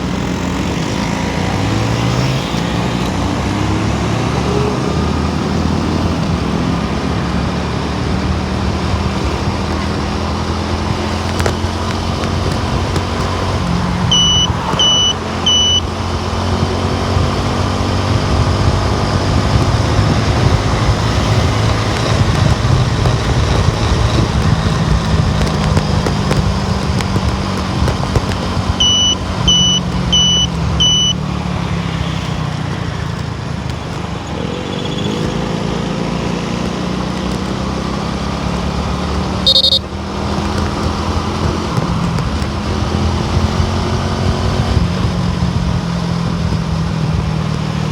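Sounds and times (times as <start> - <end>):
car engine and tyre rumble: 0.0 - 47.9
brief higher tone: 14.1 - 15.9, 28.8 - 31.2, 39.5 - 39.8
quick high electronic beeps: 14.1 - 15.9, 28.7 - 31.2, 39.4 - 39.9.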